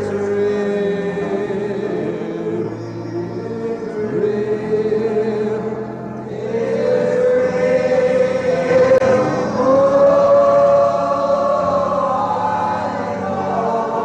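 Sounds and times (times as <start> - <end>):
congregation singing: 0.0 - 14.0.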